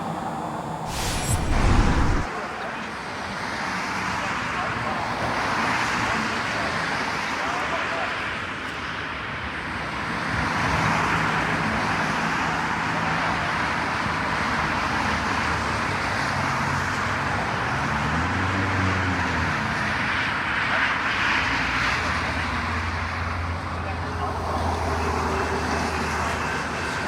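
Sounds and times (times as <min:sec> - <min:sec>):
continuous rushing noise: 0:00.0 - 0:08.1.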